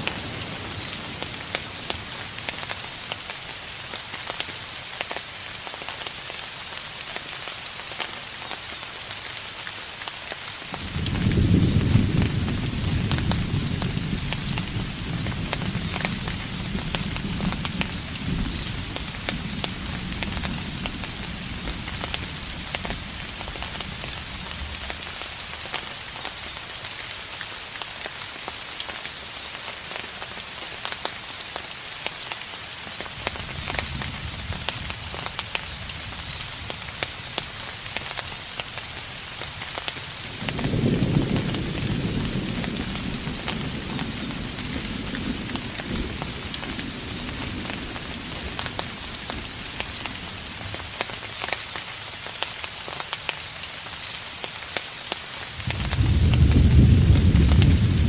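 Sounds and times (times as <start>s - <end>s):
steady rain: 0.0s - 58.0s
distant thunder rumbling: 10.8s - 25.0s, 40.4s - 50.7s, 55.6s - 58.0s.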